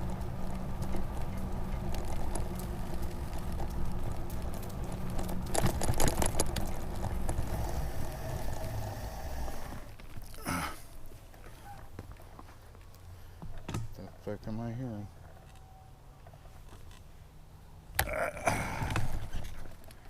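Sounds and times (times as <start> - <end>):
bicycle rattling clicks: 0.0 - 8.9
bicycle riding rumble: 0.0 - 20.0.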